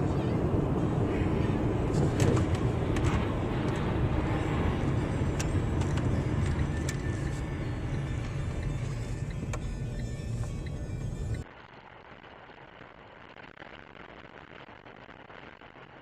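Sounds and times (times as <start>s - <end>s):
vehicle rumbling on road: 0.0s - 11.5s.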